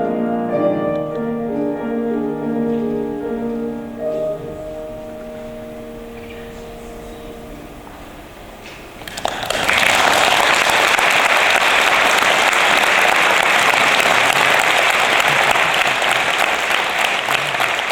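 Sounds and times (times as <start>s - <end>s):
audience applause echoing: 8.8s - 17.9s.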